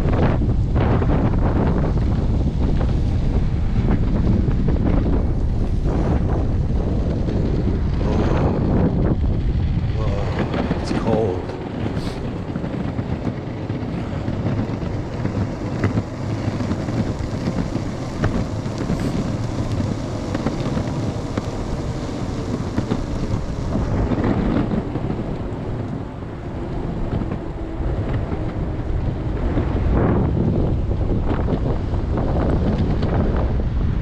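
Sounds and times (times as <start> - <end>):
faint steady whine: 0.0 - 34.0
wheels rolling on pavement: 0.0 - 34.0
wind buffeting microphone: 0.0 - 34.0
wheels ticking over joints: 6.9 - 31.8.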